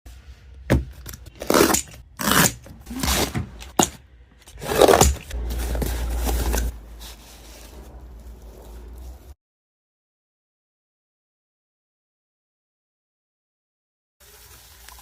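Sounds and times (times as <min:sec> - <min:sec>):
cardboard and plastic rustling: 0:02.6 - 0:09.4.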